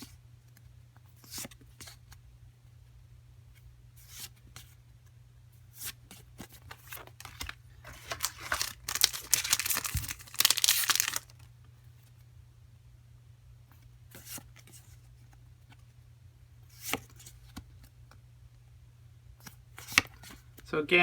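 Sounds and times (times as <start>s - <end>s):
card pack wrapper tearing: 6.8s - 11.5s.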